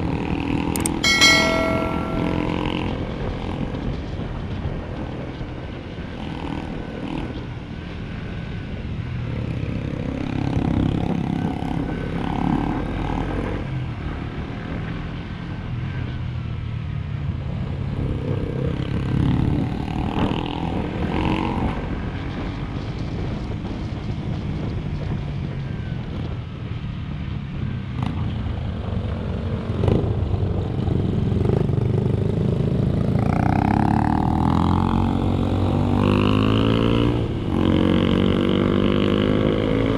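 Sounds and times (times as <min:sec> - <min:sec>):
motorcycle engine revving: 0:29.8 - 0:39.9.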